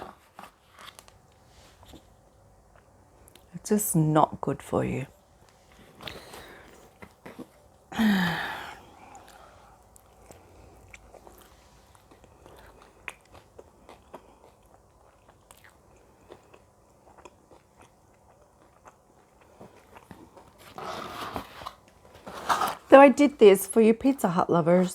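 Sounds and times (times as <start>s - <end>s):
chewing and biting: 9.1s - 20.9s.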